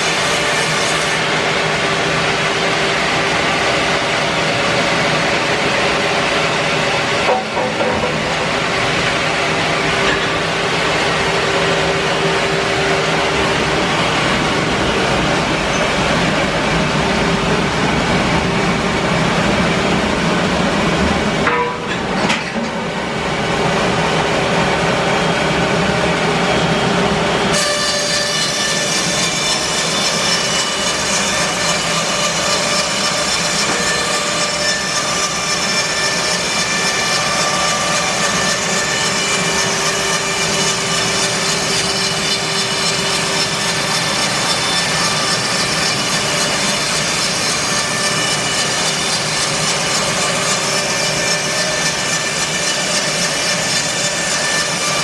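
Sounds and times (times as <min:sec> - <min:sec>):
bandsaw cutting wood: 0:27.5 - 0:55.0.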